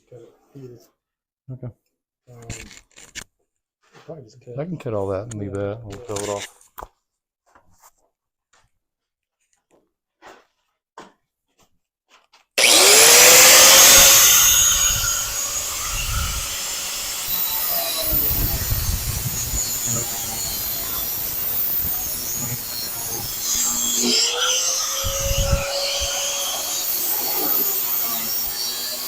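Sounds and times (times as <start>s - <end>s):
power cutter cutting sheet metal: 12.6s - 29.0s.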